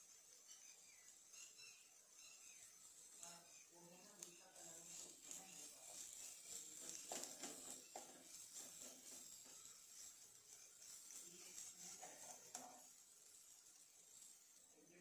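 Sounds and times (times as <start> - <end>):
vegetables sizzling in oil: 0.0 - 15.0
ladle scraping and tapping pan: 6.0 - 13.4.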